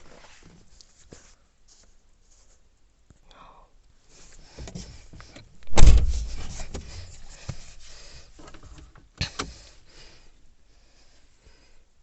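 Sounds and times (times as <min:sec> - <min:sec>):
car door shutting: 0:05.7 - 0:07.1.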